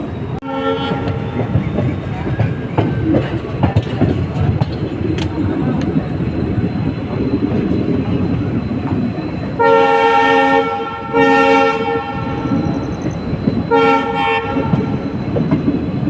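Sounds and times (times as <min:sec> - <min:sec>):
diesel train rumbling: 0:00.0 - 0:16.0
locomotive horn blasts: 0:00.4 - 0:01.6, 0:09.6 - 0:12.8, 0:13.6 - 0:15.0.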